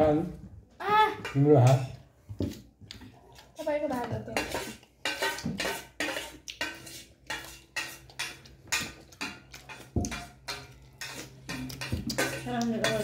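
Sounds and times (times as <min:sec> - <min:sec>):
metal spoon scraping on plate: 0:04.4 - 0:13.0.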